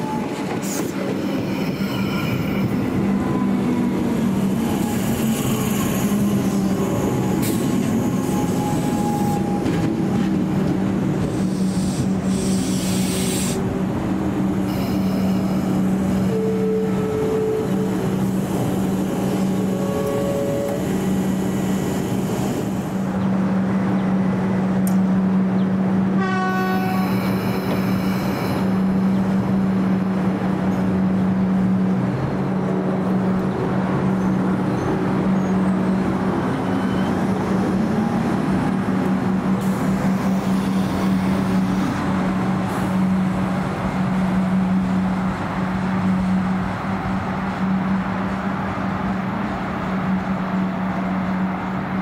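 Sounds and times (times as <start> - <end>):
electric train hum and wheel noise: 0.0 - 52.0
train approaching: 0.0 - 52.0
train horn blast: 14.7 - 18.1, 19.5 - 20.9, 26.2 - 28.1.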